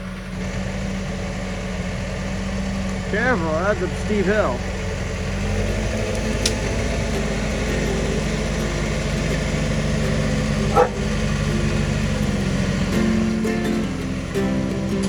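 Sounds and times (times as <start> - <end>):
tractor diesel engine running: 0.0 - 15.0
dog barking: 10.6 - 11.5.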